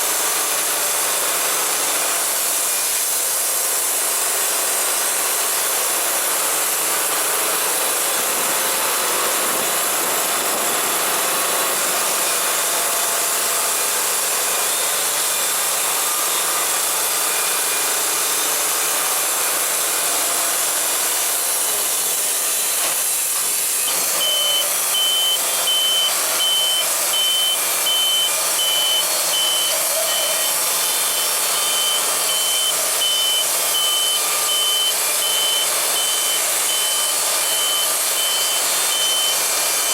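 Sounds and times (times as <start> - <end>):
band sawmill running: 0.0 - 39.9
reversing alarm beeping: 23.9 - 39.9.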